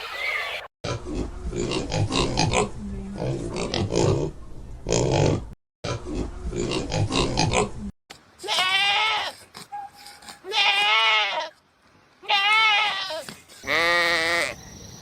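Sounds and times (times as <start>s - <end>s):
quavering bleats: 8.4s - 9.4s, 10.5s - 11.6s, 12.2s - 14.6s.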